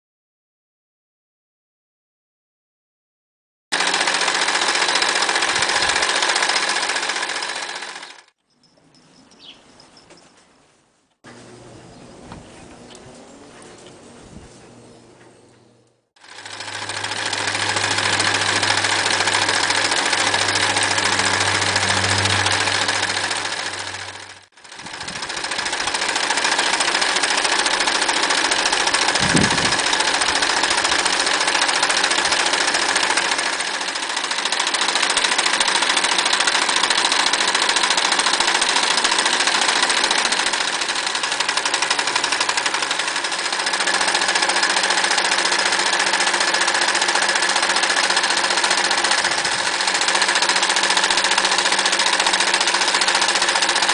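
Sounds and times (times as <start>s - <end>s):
sewing machine stitching: 3.7s - 8.4s, 16.2s - 53.9s.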